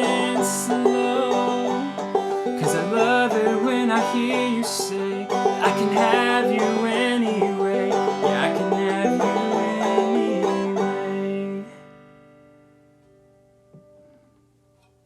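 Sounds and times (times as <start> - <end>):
clawhammer banjo playing: 0.0 - 13.1.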